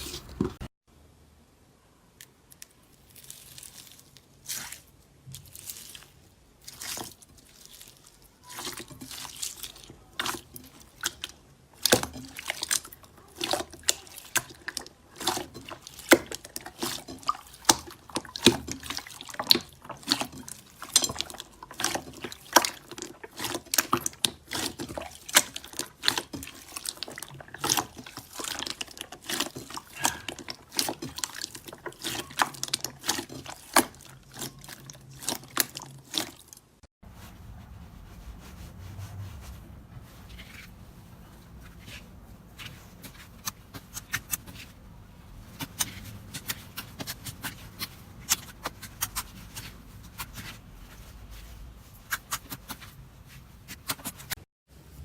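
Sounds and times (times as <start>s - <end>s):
slime squishing with wet pops: 2.3s - 36.8s, 45.4s - 54.4s.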